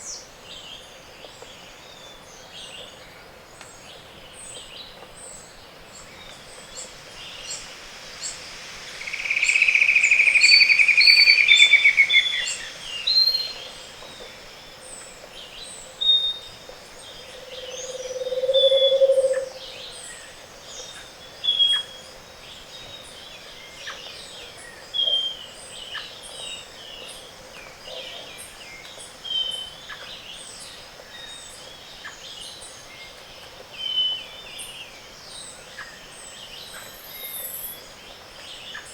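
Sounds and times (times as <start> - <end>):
fast downward bird trill: 8.2 - 13.8
low bird trill: 9.0 - 13.7, 17.2 - 19.6.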